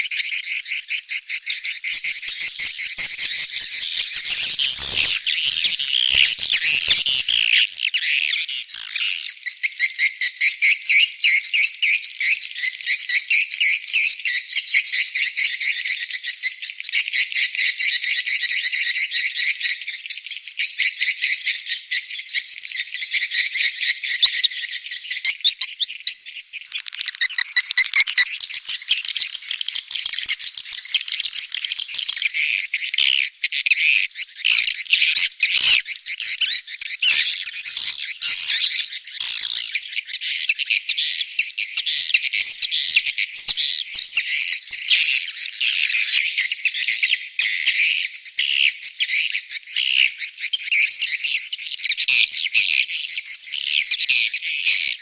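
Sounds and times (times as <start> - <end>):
swiftlets chattering chirps: 1.5 - 7.4, 41.9 - 44.3.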